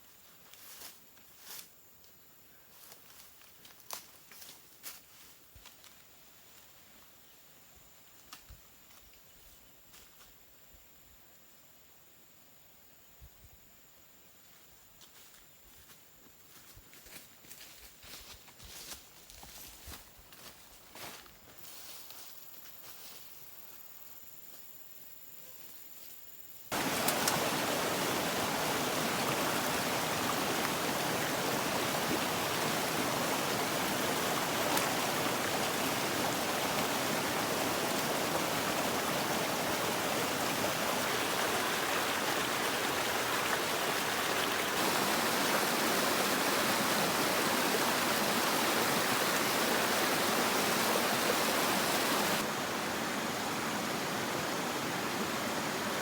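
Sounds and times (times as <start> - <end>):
running water rushing: 26.7 - 56.0.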